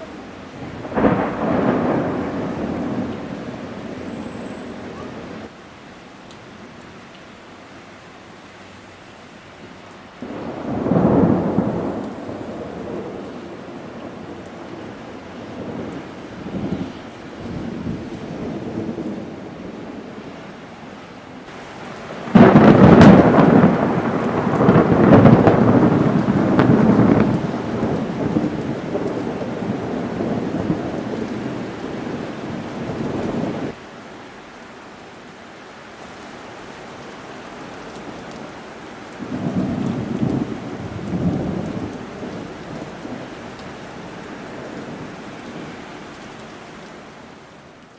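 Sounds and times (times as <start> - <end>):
thunder rumbling: 0.0 - 5.5, 10.2 - 20.3, 21.5 - 33.8, 39.1 - 45.8
heavy rain: 0.0 - 47.9.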